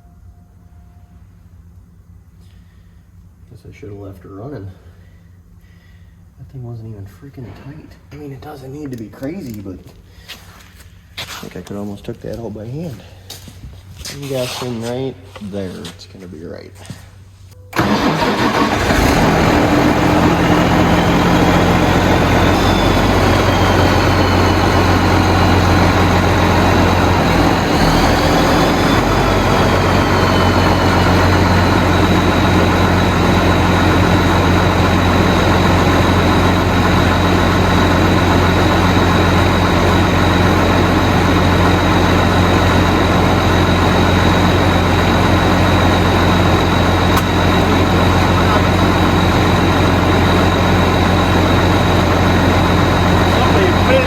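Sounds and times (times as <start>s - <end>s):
tractor diesel engine idling: 17.7s - 54.0s.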